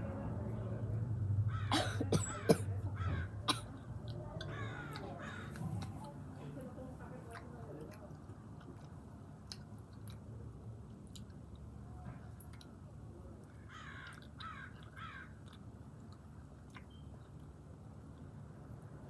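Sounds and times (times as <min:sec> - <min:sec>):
crow cawing: 0:01.5 - 0:01.8, 0:03.0 - 0:03.3, 0:04.5 - 0:05.6, 0:13.7 - 0:15.3
chewing clicks: 0:07.3 - 0:12.8, 0:13.4 - 0:18.4.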